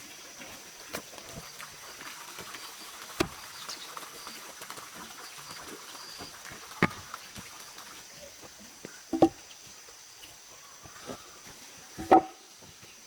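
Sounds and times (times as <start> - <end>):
sharp knocks: 3.2 - 3.4, 9.2 - 9.4, 12.0 - 12.4.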